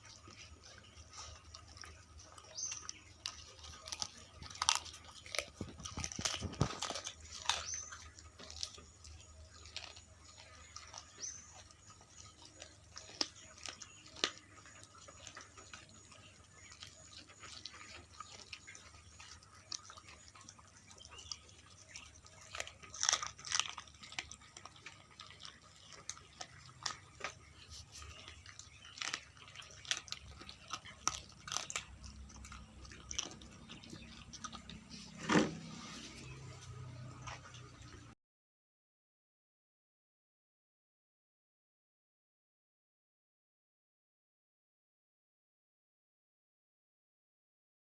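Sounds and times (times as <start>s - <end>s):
dog crunching bones: 0.0s - 35.8s.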